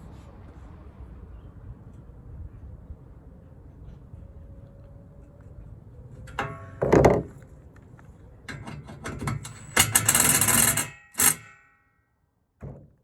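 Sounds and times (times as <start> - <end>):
metallic clicks and knocks: 6.3 - 7.4, 8.5 - 11.8
tool ratcheting: 8.5 - 11.7.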